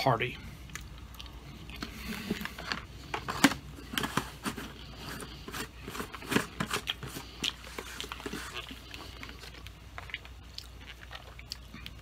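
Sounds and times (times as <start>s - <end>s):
crunching pecans being chewed: 0.6s - 4.0s, 4.7s - 12.0s
plastic jar handled: 1.9s - 8.8s.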